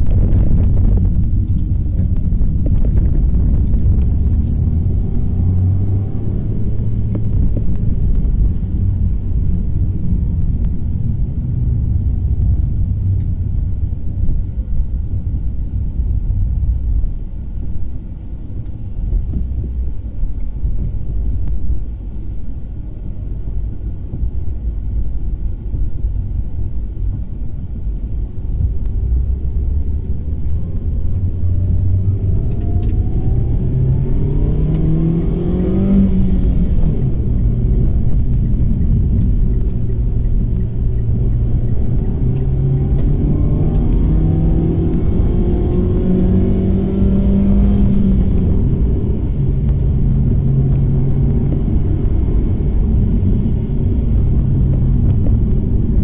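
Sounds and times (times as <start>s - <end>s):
car engine from inside cabin: 0.0s - 56.0s
road rumble: 0.0s - 56.0s.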